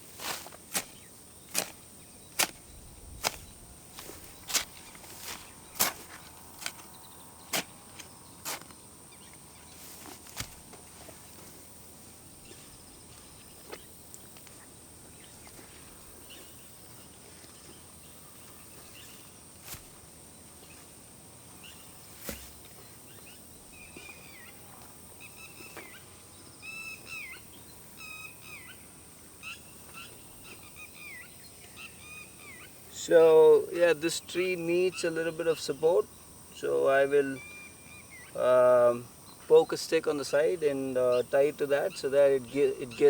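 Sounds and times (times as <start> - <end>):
high insect hiss: 0.0 - 43.0
birds chirping: 0.8 - 10.4, 25.2 - 43.0.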